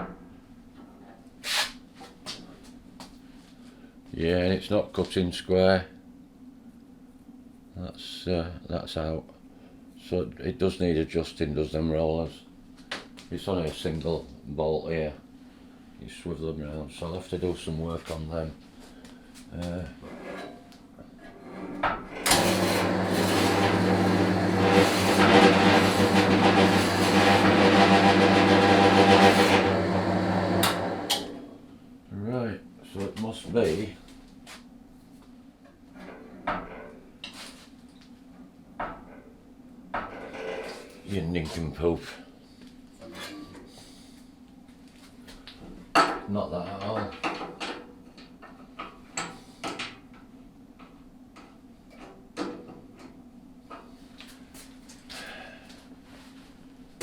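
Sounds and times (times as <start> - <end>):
bandsaw blade whirring: 22.2 - 31.5
bandsaw motor hum: 22.2 - 31.6.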